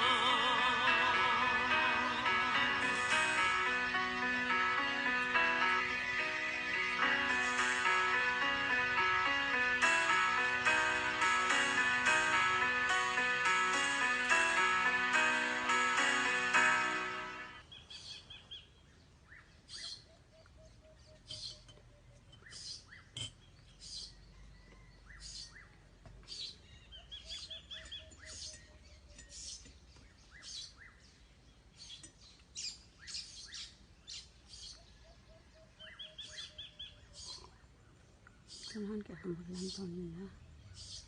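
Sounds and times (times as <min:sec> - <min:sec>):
background music: 0:00.0 - 0:17.6.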